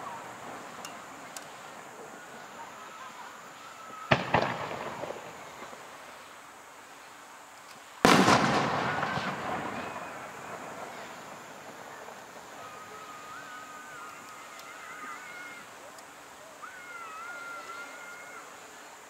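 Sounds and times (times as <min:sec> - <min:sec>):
firework shells bursting: 0:00.0 - 0:06.4, 0:07.6 - 0:16.4
firework crackle: 0:00.0 - 0:19.0.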